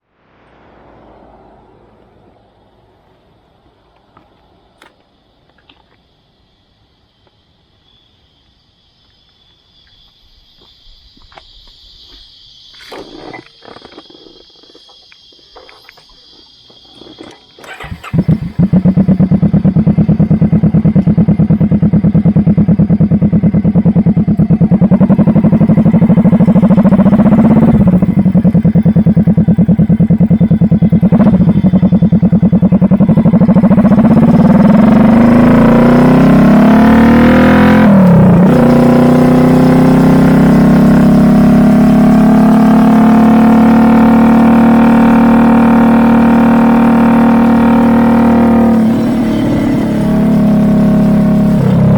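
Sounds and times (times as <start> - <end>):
motorcycle engine accelerating: 17.0 - 51.9.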